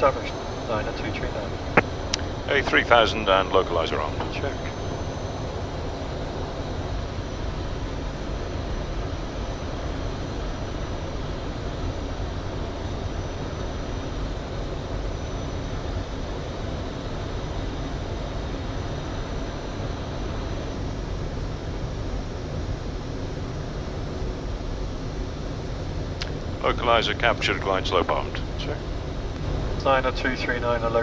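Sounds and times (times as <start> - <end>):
airflow and air conditioning rush: 0.0 - 31.0.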